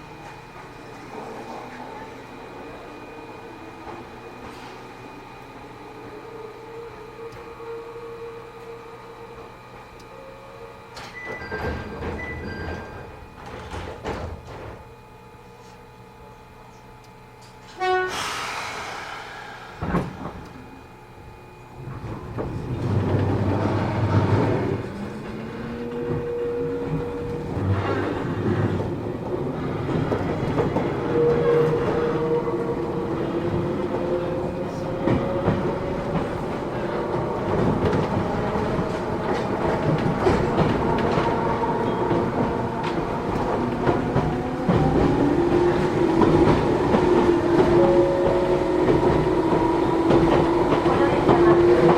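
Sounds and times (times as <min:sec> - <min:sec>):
traction motors humming: 0:00.0 - 0:51.9
train wheels rumbling: 0:17.4 - 0:51.9
train horn blast: 0:17.6 - 0:19.0.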